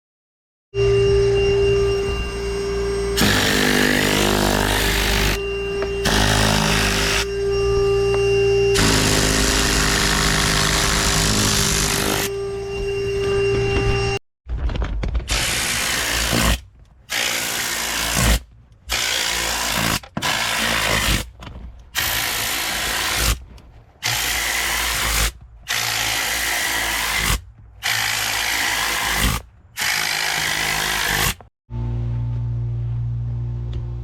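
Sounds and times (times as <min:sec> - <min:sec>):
power tool hissing: 0:01.8 - 0:12.7.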